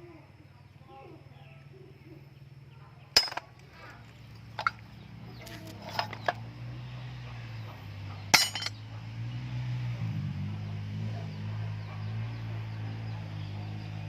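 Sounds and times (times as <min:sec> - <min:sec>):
metal pieces clinking: 0:03.2 - 0:03.5, 0:04.4 - 0:04.8, 0:05.7 - 0:06.4, 0:08.4 - 0:08.8.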